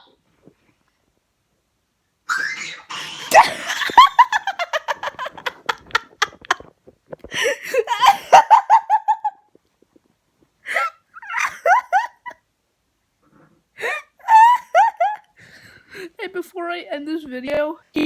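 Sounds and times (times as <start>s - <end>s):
person making laugh-like yelps: 2.3s - 5.4s, 7.4s - 9.4s, 10.7s - 12.4s, 13.8s - 15.3s.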